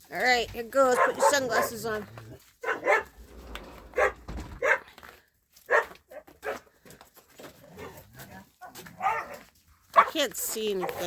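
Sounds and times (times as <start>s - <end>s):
dogs barking: 0.8s - 2.0s, 2.6s - 3.3s, 3.9s - 4.9s, 5.7s - 6.7s, 8.6s - 11.0s.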